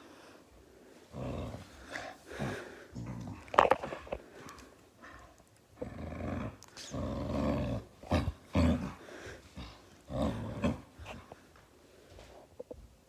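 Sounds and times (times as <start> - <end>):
dog growling: 1.1 - 4.2, 5.8 - 11.4.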